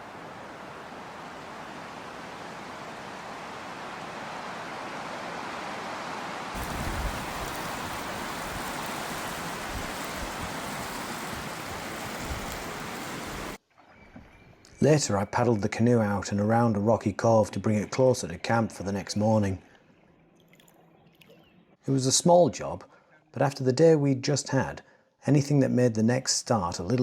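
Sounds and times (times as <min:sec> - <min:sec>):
wind rumbling on microphone: 0:06.4 - 0:13.6
wind rushing: 0:06.6 - 0:13.6
water lapping: 0:06.6 - 0:14.8.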